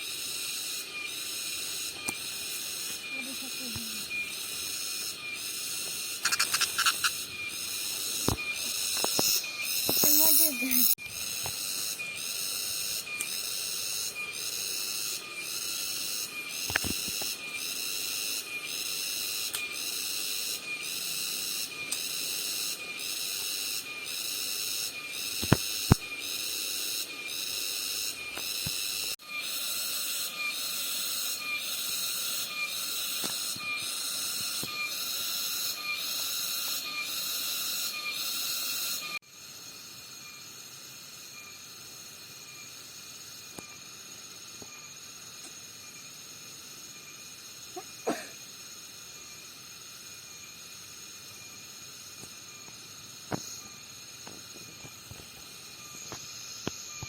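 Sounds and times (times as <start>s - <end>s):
cicada buzzing: 0.0s - 57.0s
sharp clicks: 6.2s - 7.2s.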